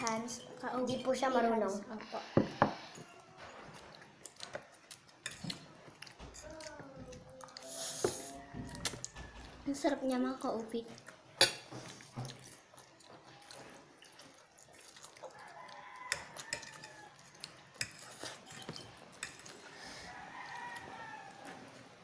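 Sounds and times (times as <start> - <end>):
forks clicking on dishes: 4.4 - 6.8, 11.4 - 12.4, 16.0 - 19.8.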